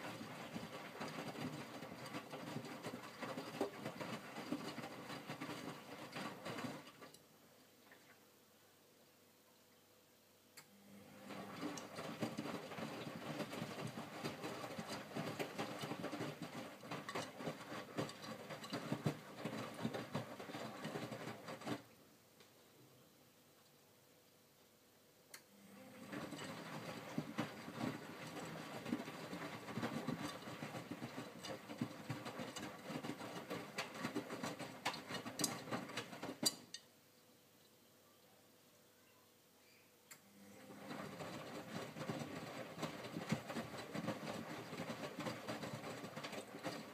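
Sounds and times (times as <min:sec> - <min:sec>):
laundry sloshing in drum: 0:00.0 - 0:07.1, 0:11.1 - 0:21.9, 0:25.7 - 0:36.5, 0:40.6 - 0:46.9.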